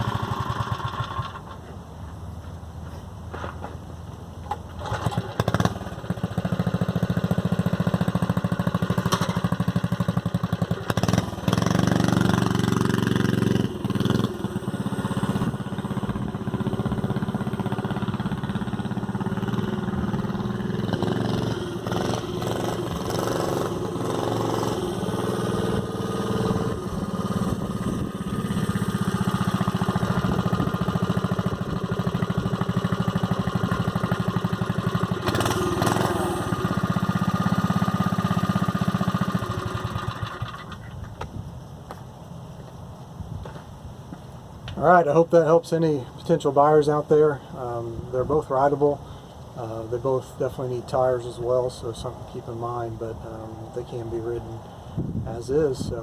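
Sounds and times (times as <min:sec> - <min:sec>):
minibike engine running: 0:00.0 - 0:01.6, 0:04.8 - 0:41.0.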